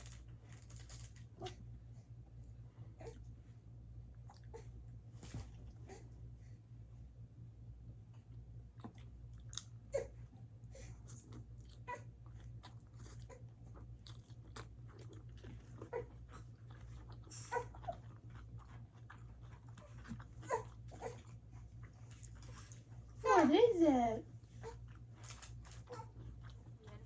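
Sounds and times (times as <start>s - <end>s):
chewing and mouth smacks: 8.7s - 9.8s, 11.0s - 22.9s, 24.8s - 27.0s.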